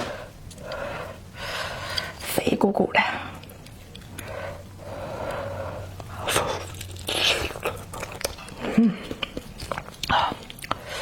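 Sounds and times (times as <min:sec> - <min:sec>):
person biting and chewing: 0:06.0 - 0:10.9.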